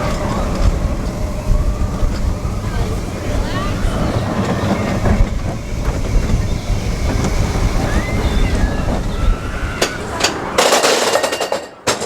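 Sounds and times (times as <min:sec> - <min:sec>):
wind buffeting microphone: 0:00.0 - 0:10.7
roller coaster rumbling on track: 0:00.0 - 0:12.0.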